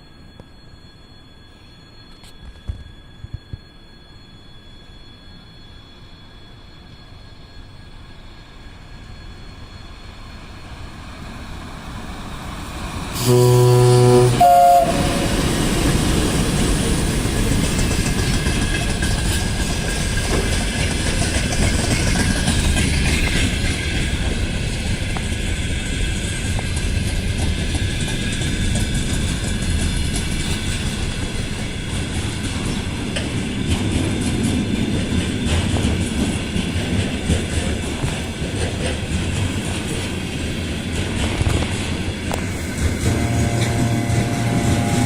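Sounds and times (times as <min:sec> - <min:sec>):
train wheels rumbling: 0:08.0 - 0:45.0
locomotive horn: 0:13.2 - 0:16.1, 0:43.0 - 0:45.0.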